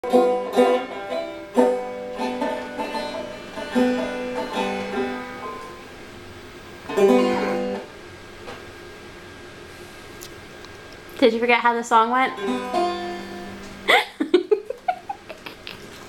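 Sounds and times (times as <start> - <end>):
plucked acoustic string instrument: 0.0 - 6.0, 6.8 - 7.9, 12.3 - 13.9.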